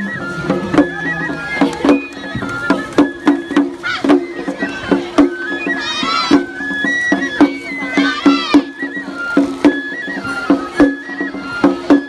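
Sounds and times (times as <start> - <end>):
high flute melody: 0.0 - 12.0
steady percussion beats: 0.0 - 12.0.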